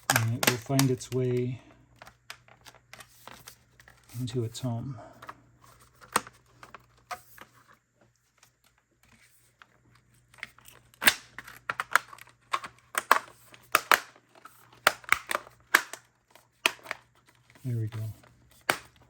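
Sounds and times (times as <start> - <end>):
plastic cover clicking and snapping: 0.0 - 4.0, 5.2 - 7.6, 8.3 - 19.0.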